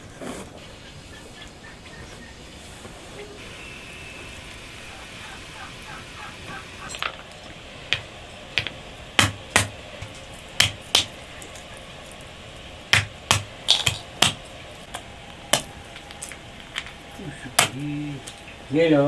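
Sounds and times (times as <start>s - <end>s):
sharp knocks: 7.9s - 11.2s, 12.9s - 15.8s.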